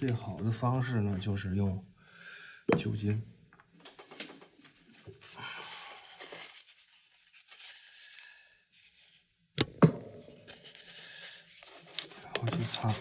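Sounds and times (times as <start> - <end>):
tissue paper rustling and tearing: 4.0 - 9.3.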